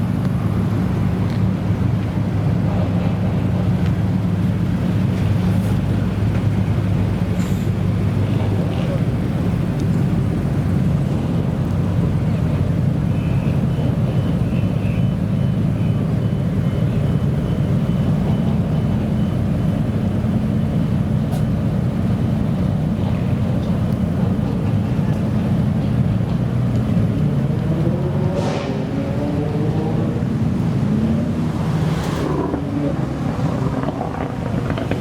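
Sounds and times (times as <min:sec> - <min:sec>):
car engine revving: 0:26.6 - 0:35.0.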